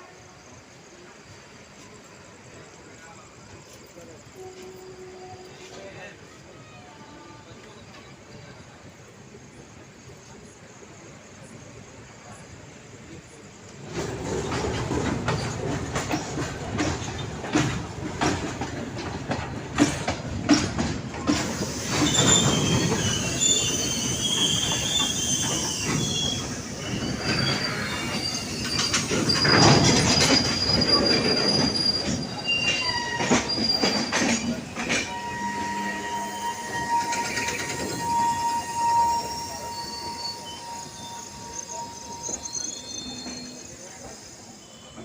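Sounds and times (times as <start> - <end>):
wheels squealing on rails: 0.0 - 45.0
train wheels knocking on rail joints: 13.9 - 38.6.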